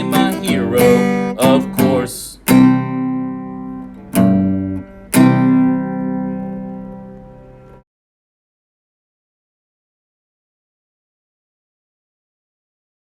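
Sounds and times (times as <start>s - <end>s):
person singing: 0.0s - 2.6s
strummed acoustic guitar: 0.0s - 7.8s.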